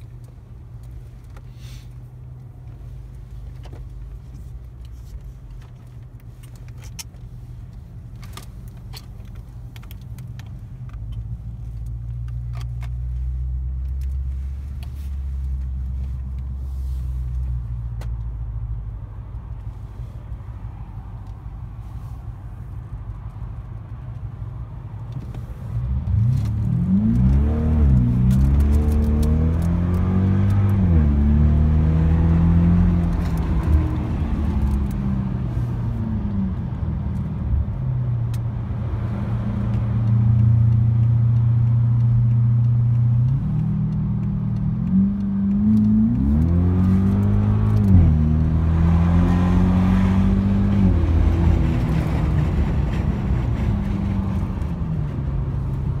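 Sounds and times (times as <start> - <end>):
car engine revving from inside cabin: 25.8 - 52.5.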